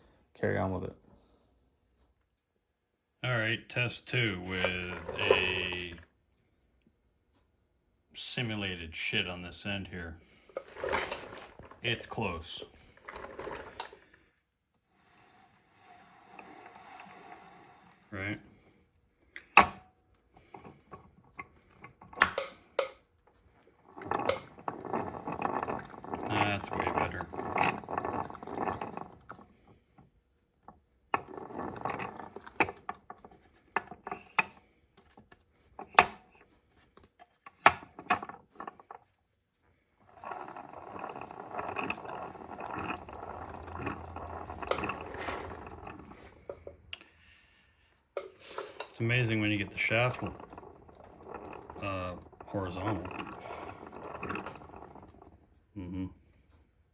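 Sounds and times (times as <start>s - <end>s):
rattling whir of meshing gears: 10.5s - 14.1s, 40.0s - 46.8s, 48.8s - 55.4s.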